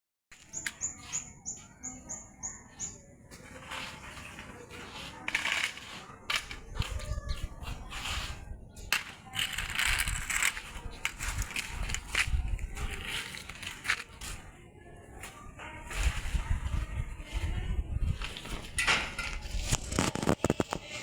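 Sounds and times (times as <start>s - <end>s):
gusting wind: 6.3s - 13.8s, 15.8s - 20.6s
wind buffeting microphone: 6.3s - 14.4s, 15.8s - 20.2s.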